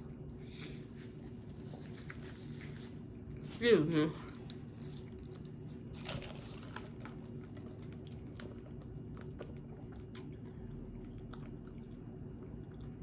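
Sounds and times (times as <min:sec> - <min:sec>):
person chewing food: 0:04.3 - 0:13.0.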